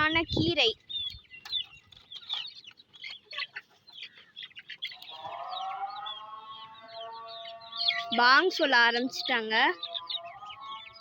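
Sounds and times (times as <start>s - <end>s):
chickens clucking: 0.0s - 11.0s
call to prayer: 4.9s - 11.0s.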